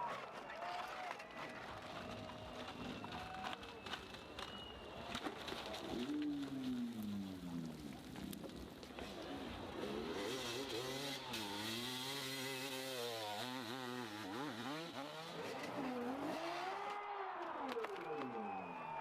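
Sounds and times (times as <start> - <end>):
motorcycle engine revving: 9.0 - 17.7.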